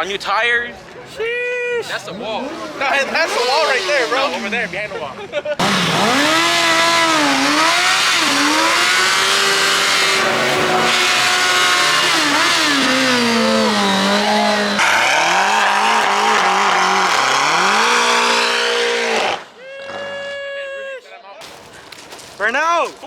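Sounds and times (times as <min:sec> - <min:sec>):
car engine revving: 0:01.9 - 0:05.0, 0:05.6 - 0:19.5.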